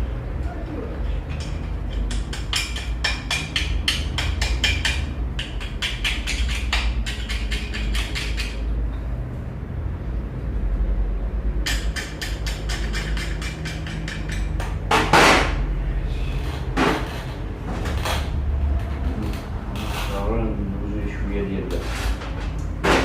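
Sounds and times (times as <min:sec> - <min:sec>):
steady low hum: 0:00.0 - 0:22.9
hand tools clicking on metal: 0:01.3 - 0:08.7, 0:11.6 - 0:14.9.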